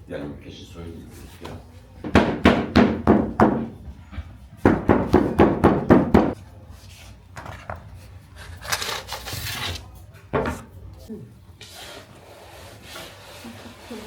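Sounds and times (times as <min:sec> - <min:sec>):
knocks on wooden work surface: 0:02.0 - 0:03.8, 0:04.7 - 0:06.4.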